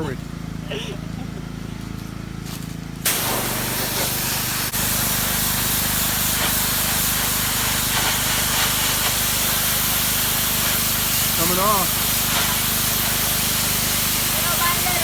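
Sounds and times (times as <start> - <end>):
pressure washer engine hum: 0.0 - 15.0
pressure washer spray hissing: 3.0 - 15.0.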